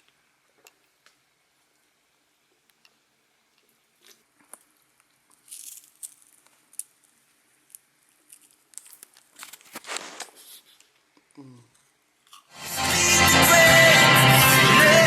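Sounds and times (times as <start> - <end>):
tortilla chips crunching: 4.0 - 10.3, 12.2 - 12.6.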